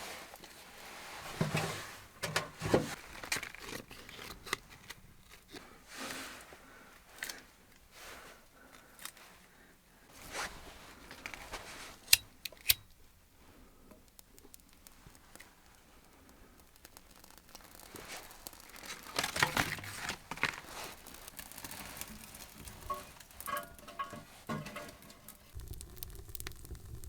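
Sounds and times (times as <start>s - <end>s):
handling scrapes and rustles: 0.0s - 9.5s, 10.1s - 12.8s, 17.2s - 25.6s
sharp clicks: 14.0s - 19.3s.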